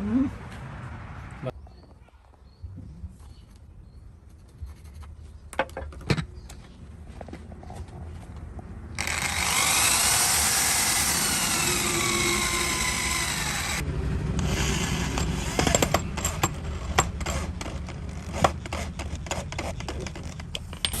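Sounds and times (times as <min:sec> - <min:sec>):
power tool whining: 0:09.0 - 0:20.3
wooden pieces clicking and knocking: 0:15.2 - 0:21.0.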